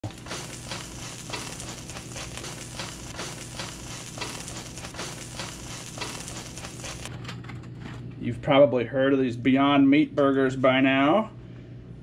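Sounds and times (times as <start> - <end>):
patty sizzling in a wok: 0.0 - 7.1.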